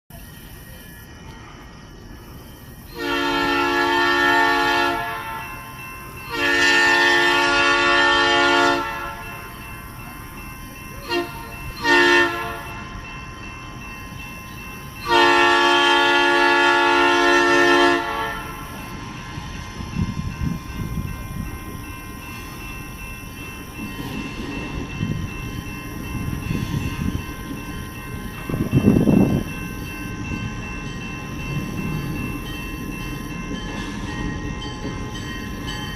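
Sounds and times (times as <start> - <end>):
train engine and wheels rumbling: 0.1 - 35.9
locomotive air horn blowing: 3.0 - 5.4, 6.3 - 9.2, 11.0 - 12.8, 15.0 - 18.7.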